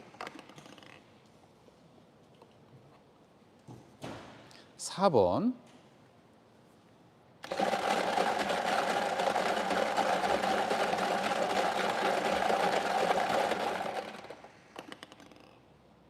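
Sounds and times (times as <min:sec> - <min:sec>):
number-drawing machine rattling: 0:07.4 - 0:14.5.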